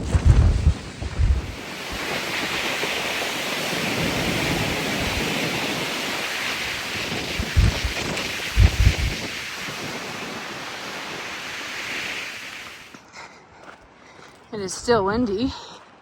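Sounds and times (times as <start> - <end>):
wind buffeting microphone: 0.0 - 12.7
wind rushing through trees: 0.0 - 13.0.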